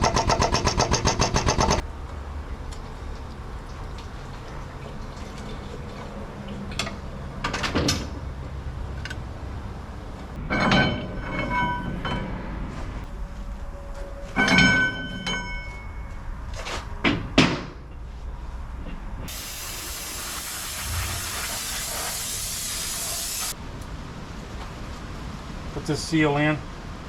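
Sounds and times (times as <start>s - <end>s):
metal clanking with ringing tone: 10.4s - 12.4s, 14.2s - 16.2s
high hiss: 19.3s - 23.6s.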